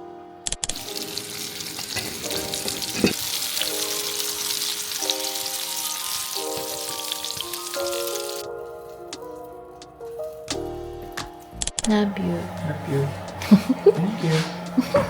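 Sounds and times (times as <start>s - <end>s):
food sizzling in a pan: 0.7s - 8.5s.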